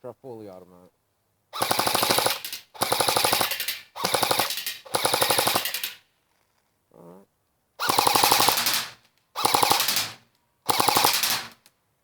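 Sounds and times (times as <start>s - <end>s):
airsoft rifle firing bursts: 1.6s - 6.0s, 7.8s - 11.7s.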